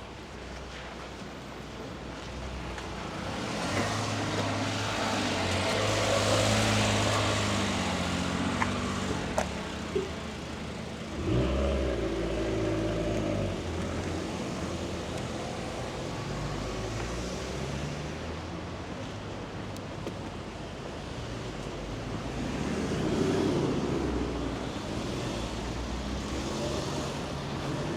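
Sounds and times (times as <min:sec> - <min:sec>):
car passing by: 0:03.1 - 0:10.2, 0:22.2 - 0:27.9
vehicle engine: 0:03.3 - 0:18.1.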